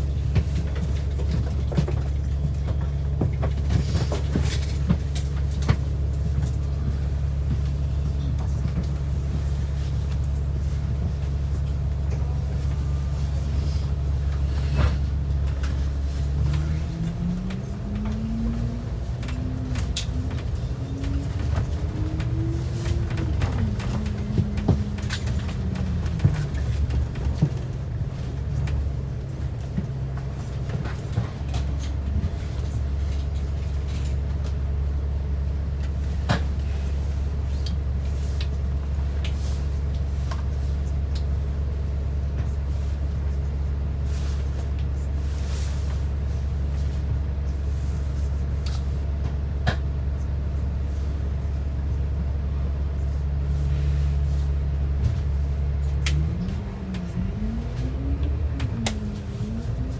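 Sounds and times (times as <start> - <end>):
rattles and clunks: 0.0 - 13.3, 13.9 - 34.6
bus engine droning: 0.0 - 59.9.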